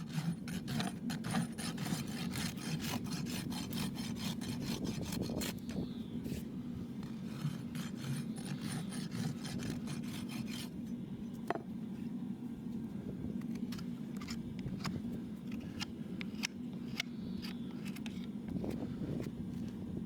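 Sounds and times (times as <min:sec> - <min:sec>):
rasp filing a hoof: 0:00.0 - 0:05.8, 0:07.0 - 0:10.7
steady low hum: 0:00.0 - 0:20.0.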